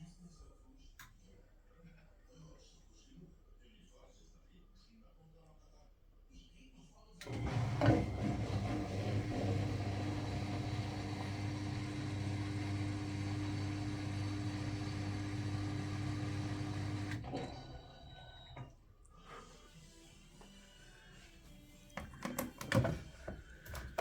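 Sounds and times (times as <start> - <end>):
washing machine spinning: 7.2 - 18.8, 22.0 - 24.0.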